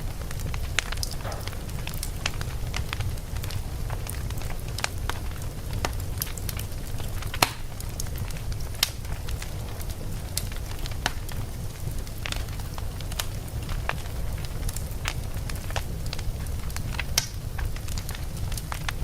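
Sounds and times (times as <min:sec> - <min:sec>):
burning logs crackling and popping: 0:00.0 - 0:19.0
low rumble of fire: 0:00.0 - 0:19.0.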